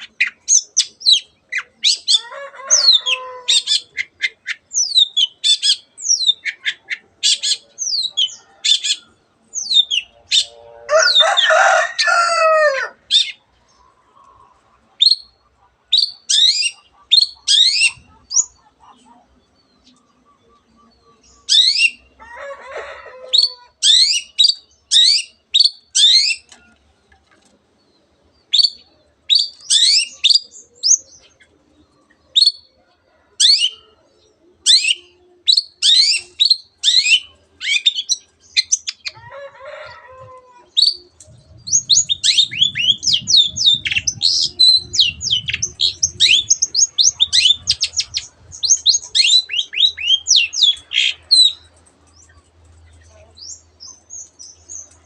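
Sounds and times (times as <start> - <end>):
harsh low bird call: 40.8 - 51.2.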